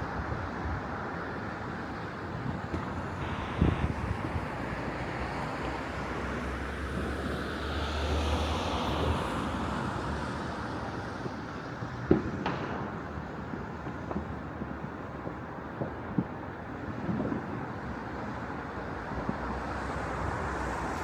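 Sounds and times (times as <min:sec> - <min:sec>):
wind: 0:00.0 - 0:21.0
distant traffic rumble: 0:00.9 - 0:16.9
firework bang: 0:12.1 - 0:13.2.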